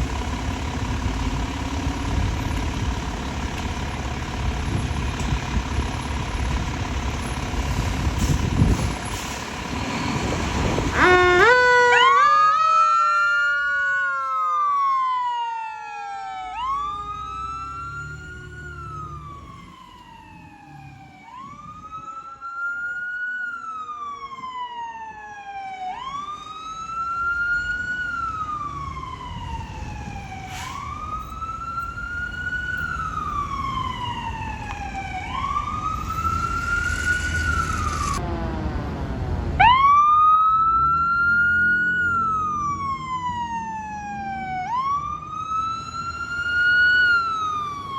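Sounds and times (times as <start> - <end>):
vehicle engine rumble: 0.0 - 47.9
siren wailing: 10.0 - 38.8, 39.6 - 47.9
siren rapid warble: 10.7 - 38.4, 39.6 - 47.9.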